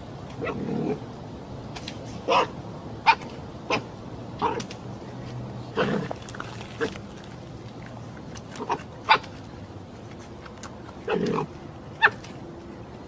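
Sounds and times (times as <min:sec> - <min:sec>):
dog barking: 0:02.3 - 0:02.5.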